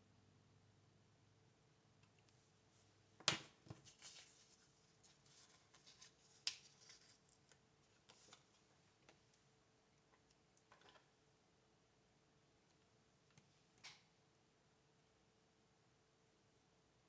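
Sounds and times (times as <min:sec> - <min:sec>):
paper rustling: 0:03.7 - 0:09.1.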